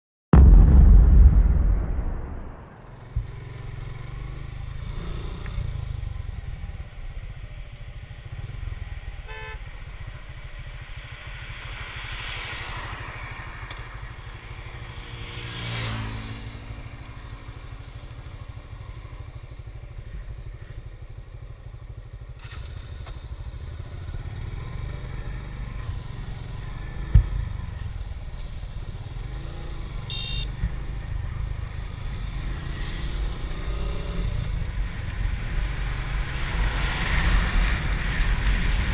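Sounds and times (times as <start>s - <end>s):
motorcycle engine rumble: 0.4s - 12.6s, 13.6s - 38.9s
vehicle passing: 15.0s - 17.2s.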